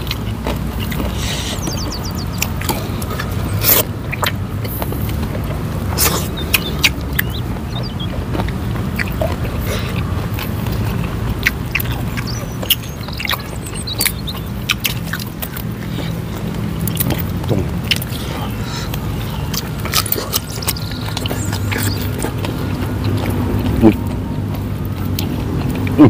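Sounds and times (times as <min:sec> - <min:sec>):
chewing leafy vegetables: 0:00.0 - 0:26.0.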